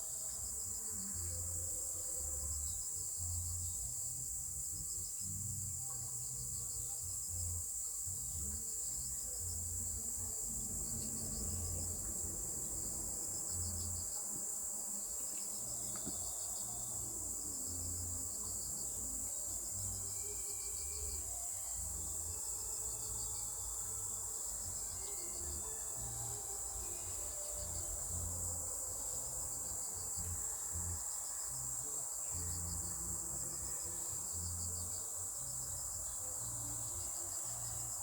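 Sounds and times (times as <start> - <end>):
crickets chirping: 0.0 - 38.0.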